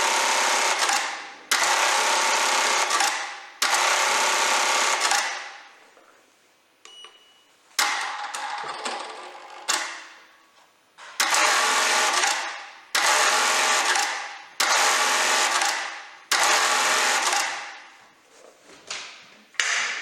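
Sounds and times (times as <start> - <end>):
industrial sewing machine running: 0.0 - 5.3, 11.2 - 17.6.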